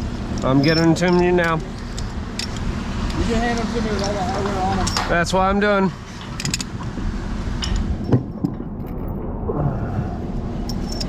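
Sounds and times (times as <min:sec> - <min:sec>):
low machinery rumble: 0:00.0 - 0:11.0
metallic clinks and knocks: 0:00.3 - 0:05.1, 0:06.1 - 0:06.8, 0:10.6 - 0:11.0.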